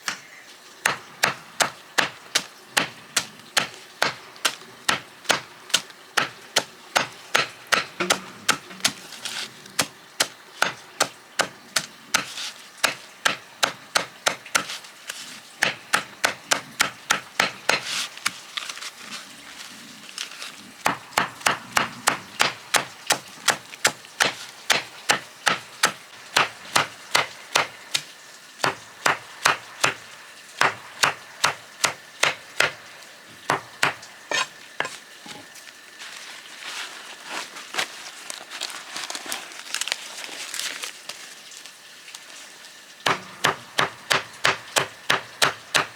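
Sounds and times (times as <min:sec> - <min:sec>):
chopping wood strikes: 0:00.8 - 0:09.0, 0:09.8 - 0:14.8, 0:15.6 - 0:18.0, 0:20.8 - 0:30.0, 0:30.6 - 0:32.8, 0:33.5 - 0:35.0, 0:43.1 - 0:45.9.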